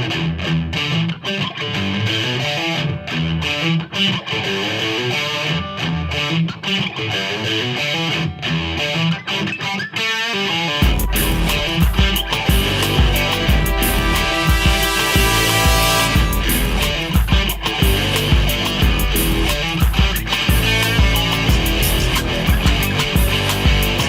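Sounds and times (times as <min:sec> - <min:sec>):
distorted electric guitar: 0:00.0 - 0:24.0
plucked electric guitar riff: 0:00.0 - 0:24.0
bass line: 0:10.8 - 0:24.0.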